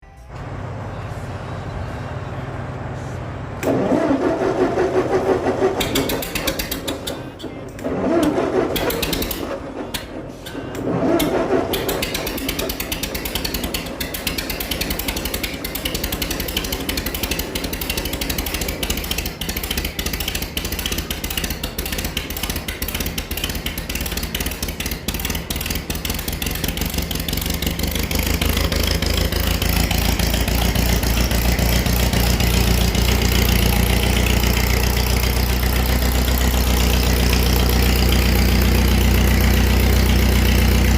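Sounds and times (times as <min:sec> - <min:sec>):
tractor engine running: 0:00.0 - 0:40.9
starter motor cranking: 0:03.6 - 0:40.9.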